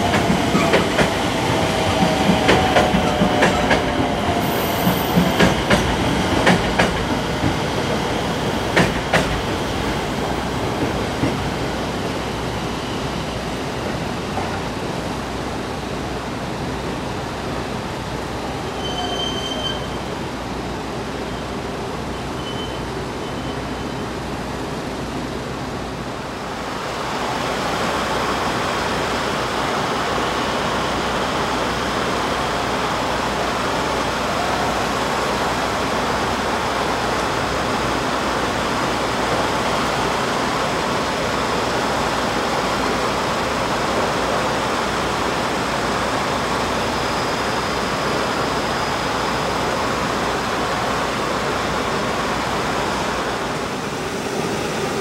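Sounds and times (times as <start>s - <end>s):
train rumbling rush: 0.0s - 55.0s
high wheel squeal: 18.6s - 20.1s, 22.1s - 24.1s.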